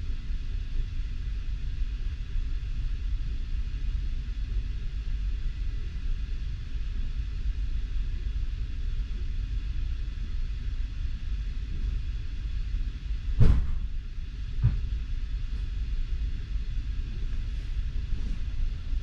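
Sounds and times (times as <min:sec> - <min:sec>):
sharp knock: 0:13.4 - 0:13.9
train carriage rumbling: 0:13.4 - 0:19.0.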